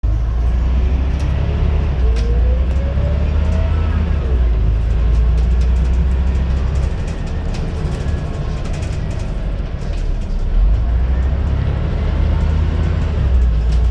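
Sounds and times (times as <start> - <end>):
bus engine rumble: 0.0 - 13.9
rattles and knocks: 4.5 - 11.6.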